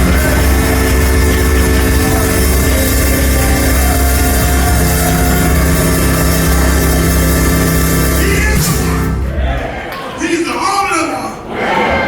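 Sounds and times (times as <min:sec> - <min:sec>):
drums: 0:00.0 - 0:09.6
live church band music: 0:00.0 - 0:10.6.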